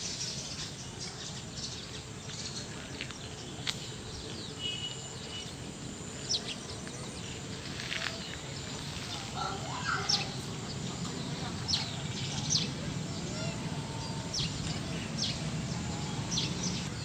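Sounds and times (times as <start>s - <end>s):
steady background hiss: 0.0s - 17.0s
bird chirps: 9.2s - 17.0s.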